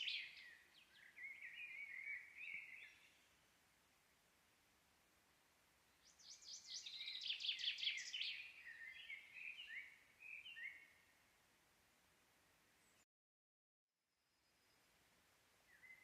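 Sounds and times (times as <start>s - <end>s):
songbird trilling and chirping: 0.0s - 3.2s, 6.0s - 11.0s.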